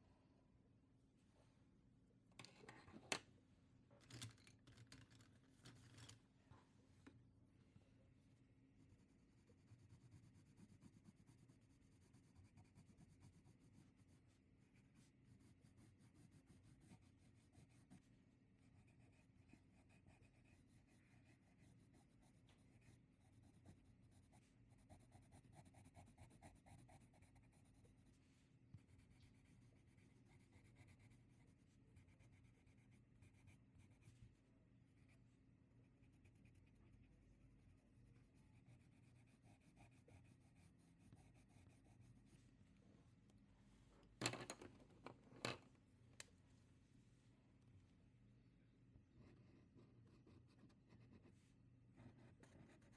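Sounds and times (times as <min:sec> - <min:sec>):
pen scratching on paper: 0:08.8 - 0:27.8, 0:52.0 - 0:52.9.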